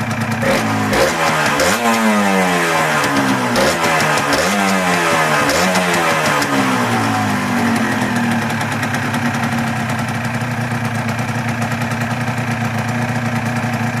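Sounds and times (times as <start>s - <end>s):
two-stroke engine revving and idling: 0.0s - 14.0s.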